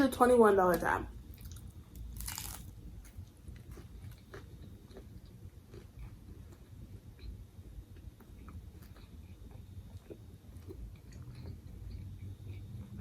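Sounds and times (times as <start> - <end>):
chewing with crackling clicks: 1.3 - 13.0
crunchy bite: 1.4 - 2.8.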